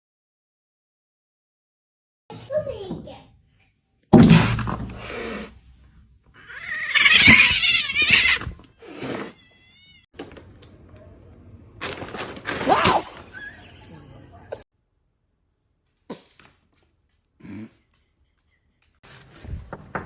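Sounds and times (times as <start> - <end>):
cat meowing: 6.4 - 10.1.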